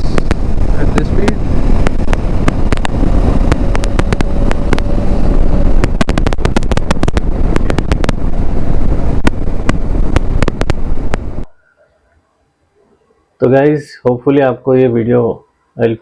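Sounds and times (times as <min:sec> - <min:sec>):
sharp crackles: 0:00.0 - 0:11.5
wind buffeting microphone: 0:00.0 - 0:11.5.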